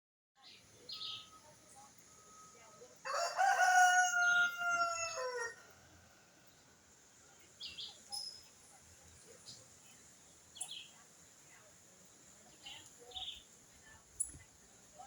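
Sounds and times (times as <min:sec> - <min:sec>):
rooster crowing: 0:02.2 - 0:06.2.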